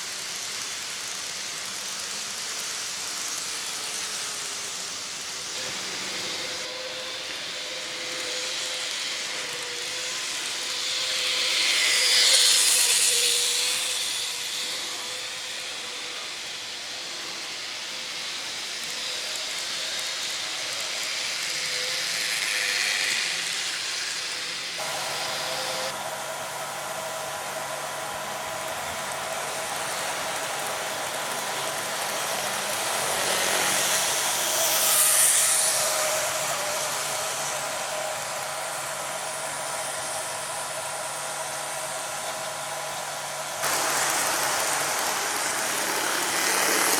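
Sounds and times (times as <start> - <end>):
model trains whirring and rolling: 0.0 - 46.9.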